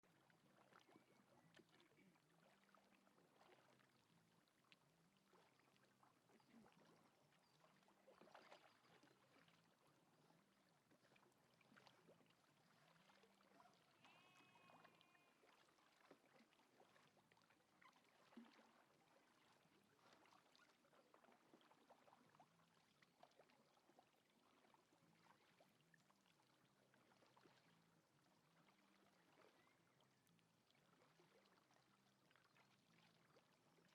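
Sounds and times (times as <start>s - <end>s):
faint water splashes and drips: 0.0s - 33.9s
faint pitched call: 13.6s - 15.6s.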